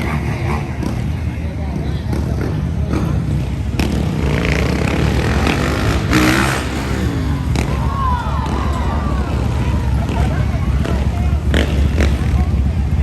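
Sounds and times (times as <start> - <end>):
dirt bike engine revving: 0.0 - 13.0
low outdoor rumble: 0.0 - 13.0.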